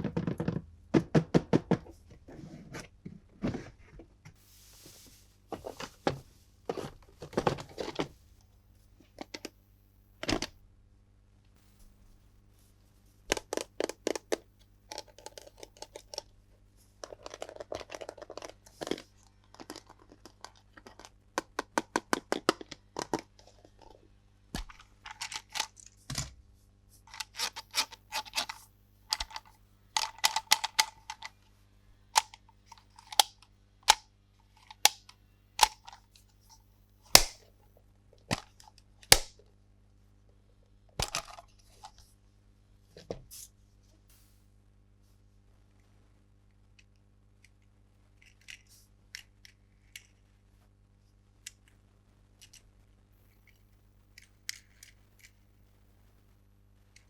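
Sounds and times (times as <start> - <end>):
plastic toys clicking and tapping: 0.0 - 2.0, 13.3 - 16.3, 17.0 - 24.0, 24.6 - 26.3, 27.1 - 31.4, 32.2 - 34.0, 34.6 - 36.1, 52.4 - 52.7, 54.2 - 55.4.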